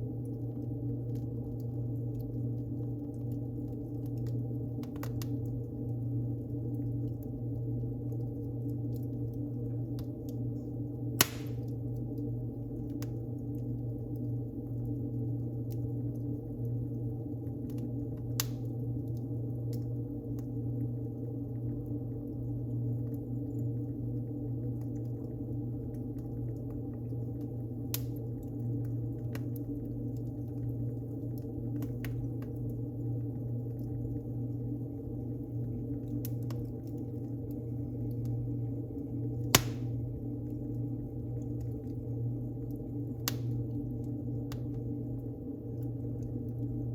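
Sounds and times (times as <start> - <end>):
low steady hum: 0.0 - 46.9
wood fire crackling: 0.0 - 46.9
sharp loud fire pop: 11.2 - 11.6, 39.6 - 40.0.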